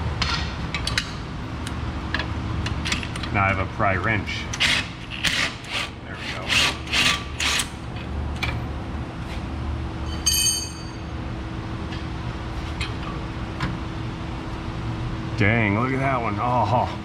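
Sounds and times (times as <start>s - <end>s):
steady low hum: 0.0s - 17.0s
metal tools clanking: 10.1s - 11.0s
ringing metallic clink: 10.1s - 11.1s.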